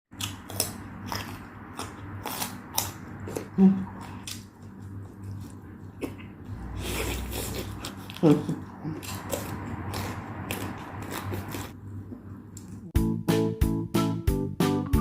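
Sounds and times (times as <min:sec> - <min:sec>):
crisp bites and chewing: 0:00.2 - 0:06.2, 0:06.9 - 0:11.7.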